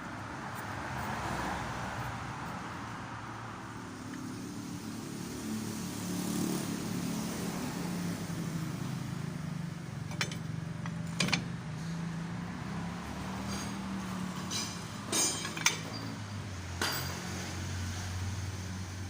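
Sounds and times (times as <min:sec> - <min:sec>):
metallic clinks of tools: 0:14.4 - 0:16.2.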